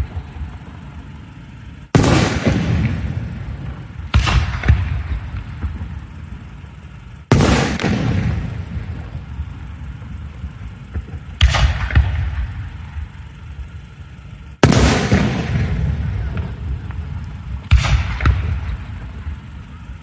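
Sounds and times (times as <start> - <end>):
firework booms: 0.0 - 13.4, 14.6 - 20.0
rumbling echo: 0.0 - 20.0.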